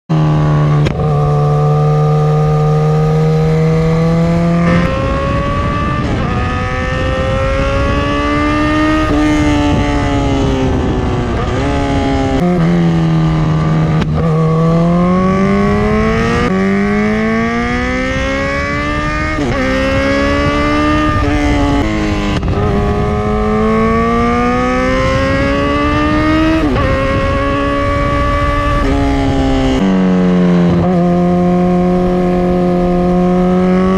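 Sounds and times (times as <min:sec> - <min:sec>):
motorcycle engine revving: 0:00.1 - 0:33.9.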